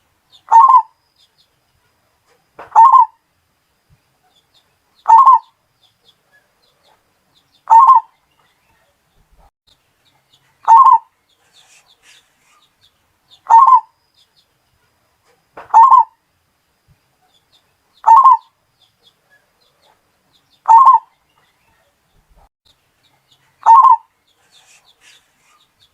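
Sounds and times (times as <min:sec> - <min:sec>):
dove cooing: 0:00.5 - 0:00.9, 0:02.7 - 0:03.2, 0:05.1 - 0:05.5, 0:07.7 - 0:08.1, 0:10.6 - 0:11.8, 0:13.4 - 0:13.9, 0:15.6 - 0:16.1, 0:18.0 - 0:18.5, 0:20.7 - 0:21.1, 0:23.6 - 0:25.6.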